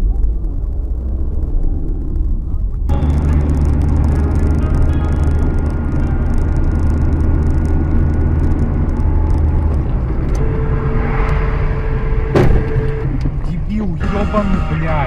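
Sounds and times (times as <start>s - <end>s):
car engine and road noise: 0.0s - 15.0s
faint steady tone: 10.3s - 15.0s.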